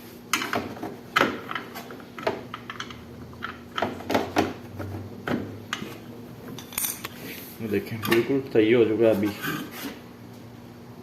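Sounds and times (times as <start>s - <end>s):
metal tools clicking and knocking: 1.2s - 4.2s, 6.6s - 7.1s.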